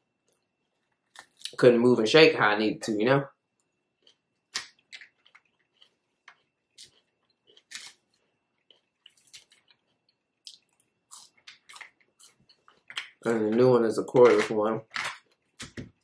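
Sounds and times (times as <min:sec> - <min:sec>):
person chewing: 0:03.6 - 0:13.3, 0:14.9 - 0:16.0.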